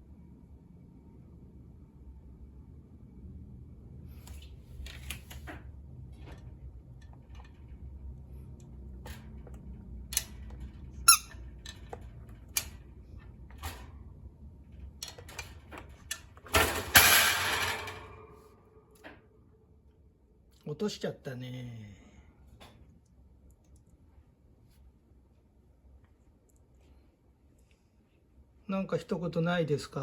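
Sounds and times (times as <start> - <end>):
squeaky toy squeak: 11.0 - 11.4.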